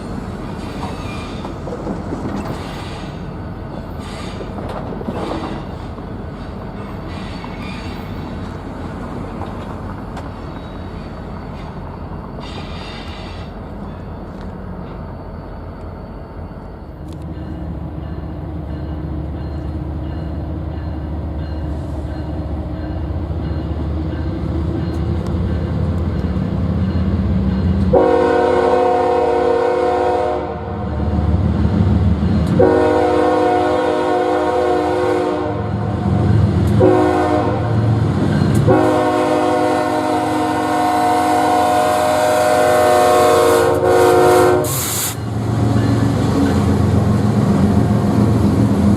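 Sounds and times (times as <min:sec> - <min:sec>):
diesel locomotive rumbling: 0:00.0 - 0:48.9
train air horn blasts: 0:27.9 - 0:30.8, 0:32.6 - 0:35.9, 0:36.7 - 0:37.8, 0:38.6 - 0:45.2.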